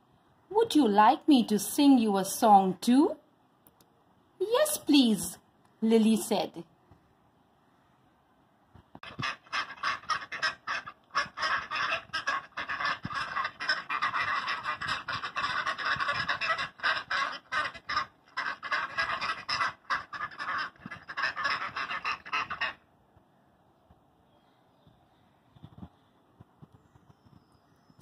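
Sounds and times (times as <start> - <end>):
ducks quacking rapidly: 9.0 - 22.9.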